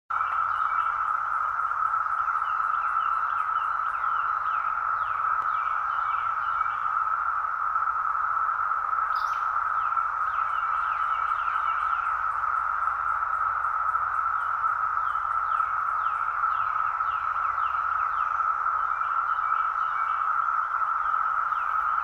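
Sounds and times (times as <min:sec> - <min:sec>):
cicadas droning: 0:00.1 - 0:22.0
birds chirping: 0:09.0 - 0:22.0.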